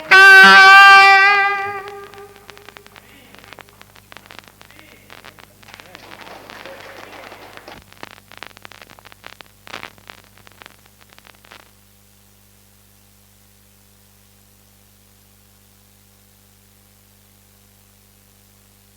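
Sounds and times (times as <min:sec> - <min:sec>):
faint mains hum: 0:00.0 - 0:18.9
low hiss: 0:00.0 - 0:18.9
audience applause: 0:05.7 - 0:07.8.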